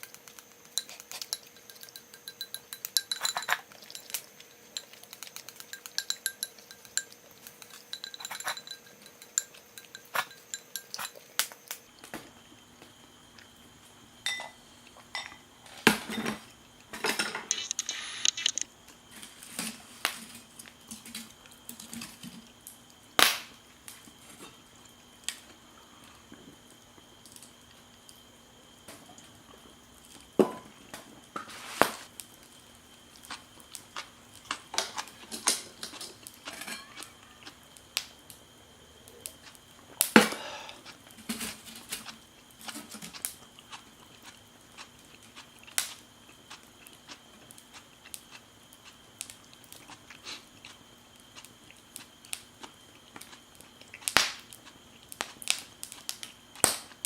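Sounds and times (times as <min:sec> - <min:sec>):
cookware and tableware clinking: 0:00.0 - 0:11.5, 0:14.2 - 0:18.6, 0:34.5 - 0:37.1.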